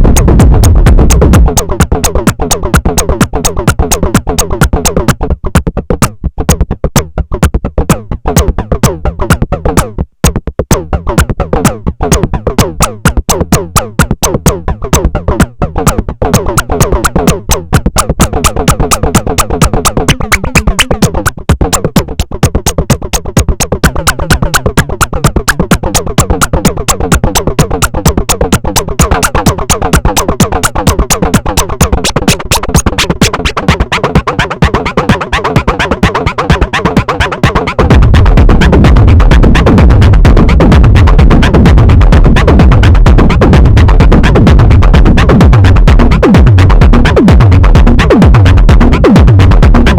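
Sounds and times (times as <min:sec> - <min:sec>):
sequenced synth percussion: 0:00.0 - 0:49.9
repeating synth line: 0:16.3 - 0:21.4, 0:22.6 - 0:49.9.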